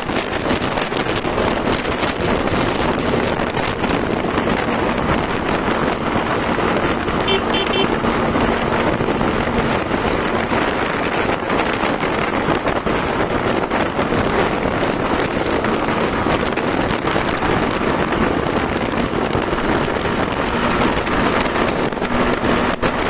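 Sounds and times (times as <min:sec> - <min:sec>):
motorcycle engine humming: 0:00.0 - 0:23.0
wind buffeting microphone: 0:00.0 - 0:23.0
short high beeps: 0:07.3 - 0:07.9.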